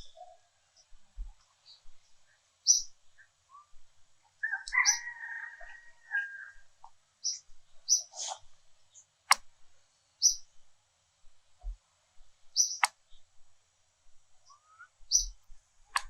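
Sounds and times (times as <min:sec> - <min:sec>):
rooster crowing: 0:04.4 - 0:06.7
short high bird chirps: 0:12.6 - 0:12.9.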